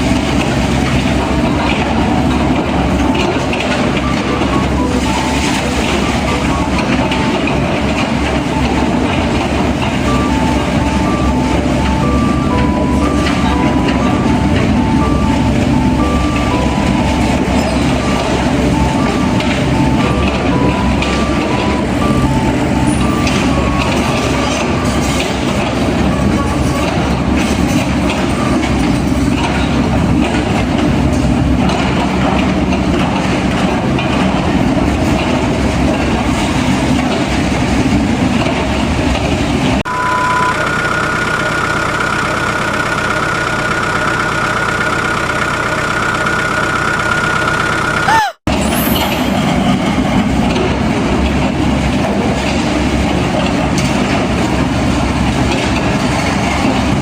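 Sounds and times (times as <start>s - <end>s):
heavy machinery engine: 0.0s - 57.0s
steady high whine: 39.9s - 48.4s.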